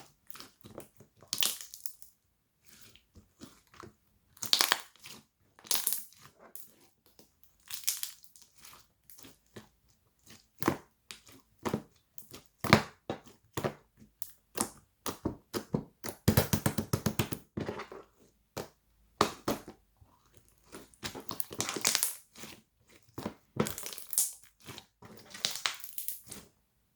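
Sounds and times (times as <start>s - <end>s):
crinkling and crushing: 17.6s - 26.6s.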